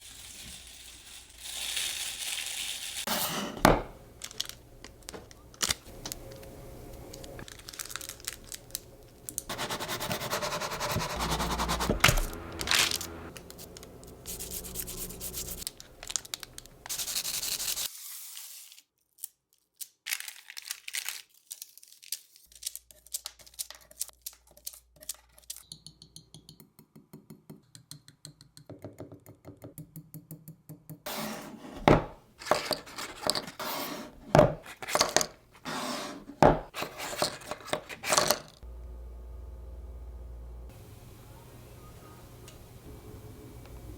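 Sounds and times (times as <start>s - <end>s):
packaging rustling and tearing: 4.2s - 6.5s, 7.1s - 9.5s, 12.0s - 25.6s.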